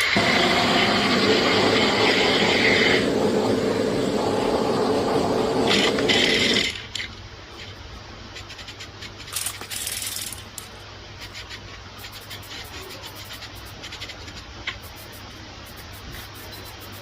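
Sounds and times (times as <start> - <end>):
loud steady machine noise: 0.0 - 7.0
small parts clicking and rubbing: 6.6 - 17.0.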